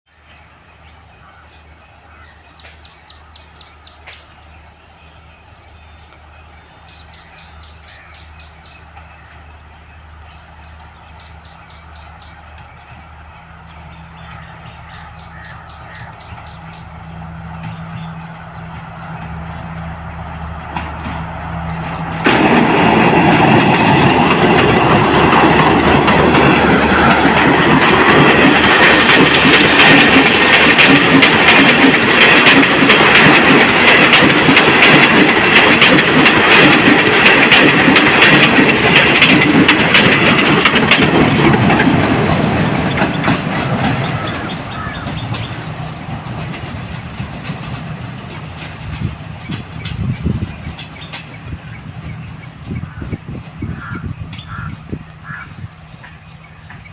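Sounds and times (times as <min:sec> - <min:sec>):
train running past: 0:00.1 - 0:56.9
bird chirping: 0:00.2 - 0:19.6, 0:21.6 - 0:22.3.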